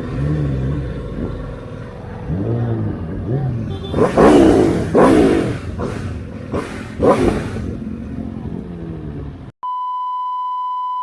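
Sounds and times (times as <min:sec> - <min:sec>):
motorcycle engine revving: 0:00.0 - 0:09.5.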